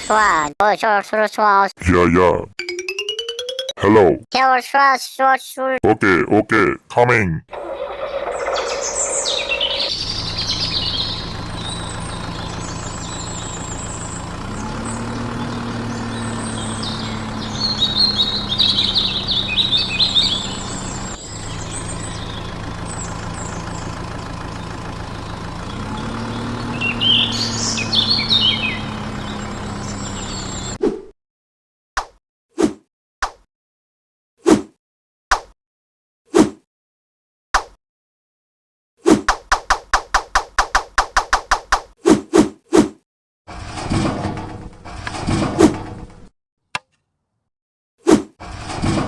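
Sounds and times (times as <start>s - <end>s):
birds chirping: 7.5s - 30.8s
truck engine revving: 7.5s - 30.8s.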